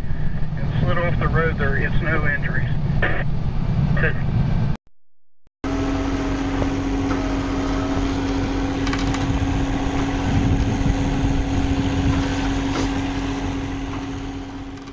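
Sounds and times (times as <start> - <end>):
vehicle engine droning: 5.6 - 14.9.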